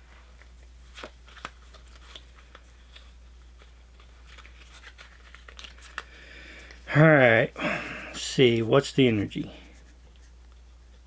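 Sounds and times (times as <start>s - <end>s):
low steady hum: 0.0s - 11.0s
trading cards rustling and clicking: 0.4s - 6.9s.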